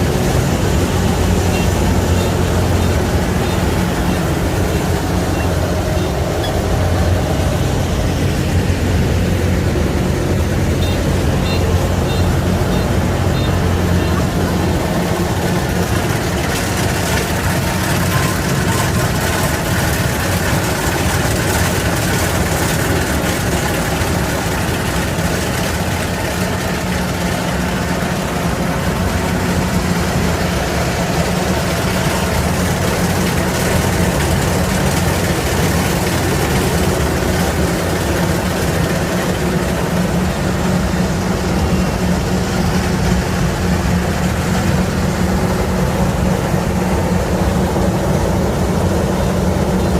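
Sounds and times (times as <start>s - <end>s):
combine harvester engine droning: 0.0s - 49.9s.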